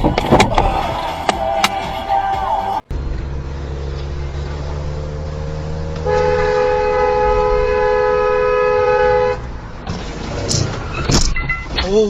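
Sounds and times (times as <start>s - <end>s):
engine and road noise: 0.0s - 12.0s
vehicle horn blast: 6.0s - 9.4s.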